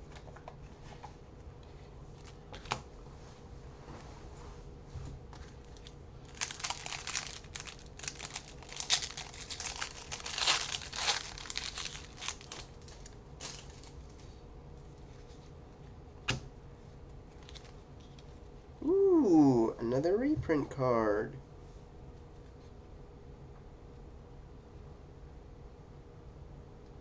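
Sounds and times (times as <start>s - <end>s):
wrapper tearing and crinkling: 5.6s - 14.1s, 17.3s - 17.8s.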